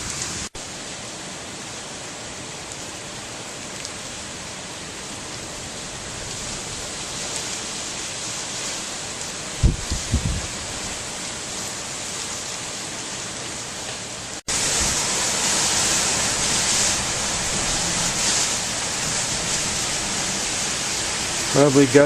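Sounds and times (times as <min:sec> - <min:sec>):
rain: 0:00.0 - 0:22.0
gusting wind: 0:04.0 - 0:13.3, 0:14.5 - 0:22.0.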